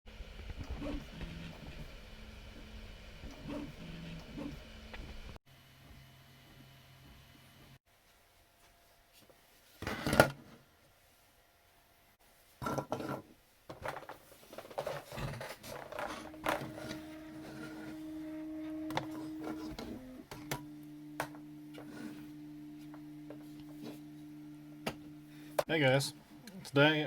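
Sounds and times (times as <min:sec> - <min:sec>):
steady machine hum: 0:00.1 - 0:07.8, 0:15.6 - 0:27.0.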